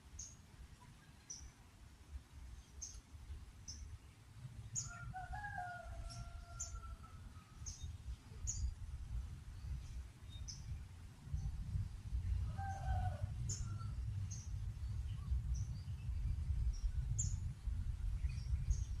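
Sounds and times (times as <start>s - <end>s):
rooster crowing: 4.8s - 7.3s, 12.4s - 14.0s.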